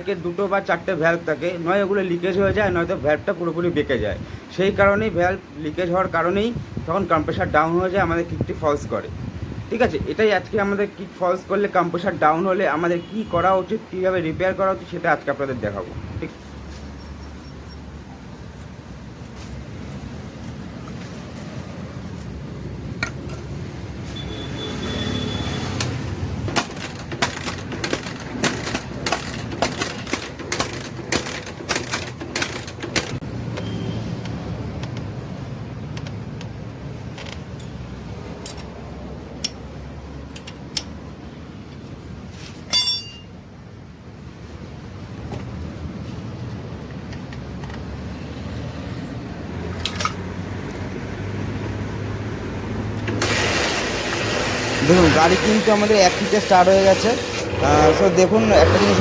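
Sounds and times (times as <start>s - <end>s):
metal tools clinking on engine: 25.7s - 33.8s, 37.1s - 38.8s, 39.4s - 41.0s, 42.7s - 43.4s, 49.7s - 50.3s.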